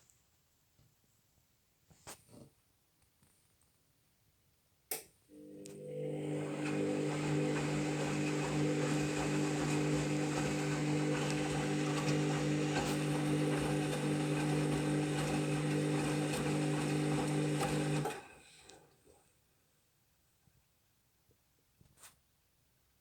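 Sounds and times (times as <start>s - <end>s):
washing machine drum motor: 5.8s - 18.4s.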